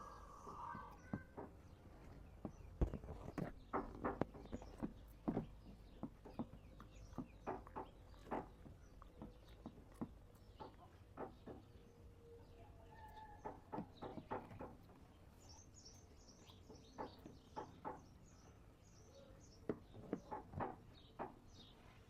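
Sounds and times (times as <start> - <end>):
faint bird chirps: 15.4 - 20.3.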